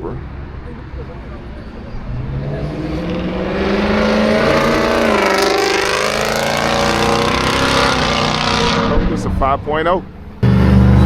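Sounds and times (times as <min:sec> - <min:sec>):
car engine accelerating past: 0:02.0 - 0:09.4.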